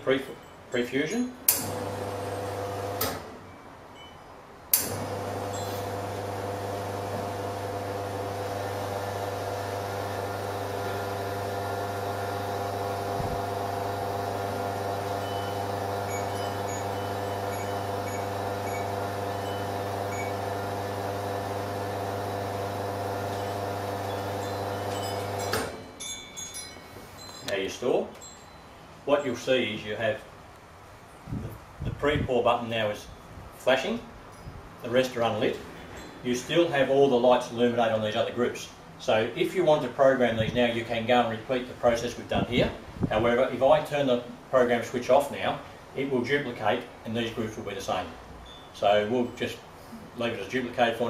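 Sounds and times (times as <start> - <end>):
espresso machine pump humming: 1.7 - 3.0, 4.9 - 25.6.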